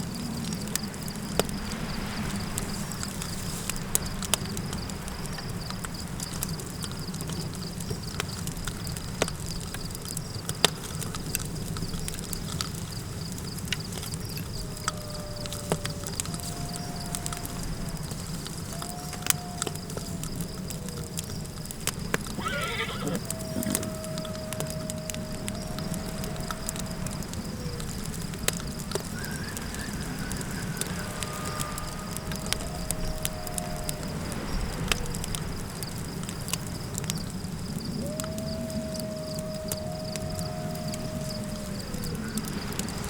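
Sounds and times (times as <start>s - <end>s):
campfire crackling: 0.0s - 43.0s
howling wind: 0.0s - 43.0s
wind rumbling: 0.0s - 43.0s
horse whinnying: 22.3s - 24.6s.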